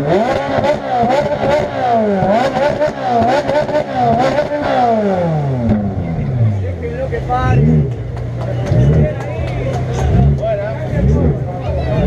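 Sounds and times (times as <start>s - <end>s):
engines revving in quick blips: 0.0s - 6.6s.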